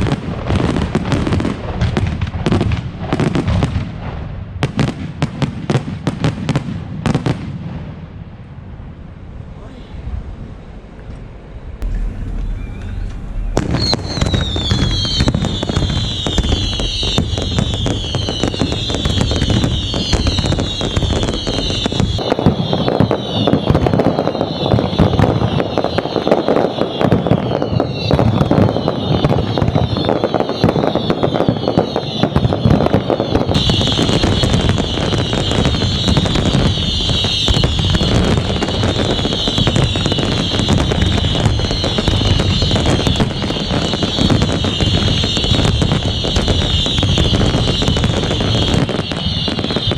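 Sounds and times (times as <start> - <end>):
fireworks bangs and crackling: 0.0 - 49.9
whistling firework shells: 11.8 - 49.9.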